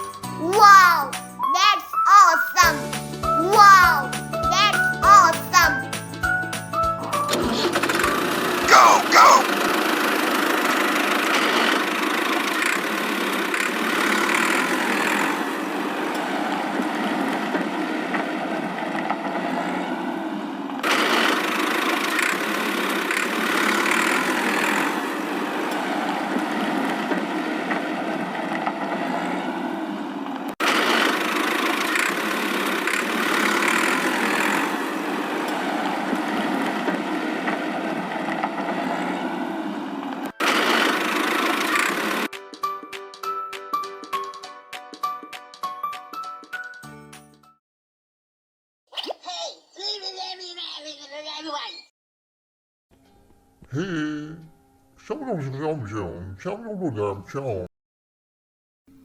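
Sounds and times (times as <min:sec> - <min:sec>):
engine-like running sound: 0:07.3 - 0:42.3.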